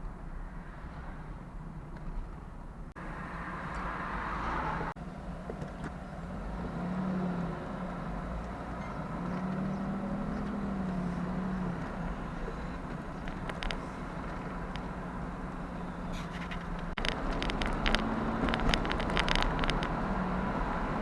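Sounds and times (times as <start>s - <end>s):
car engine running: 5.0s - 21.0s.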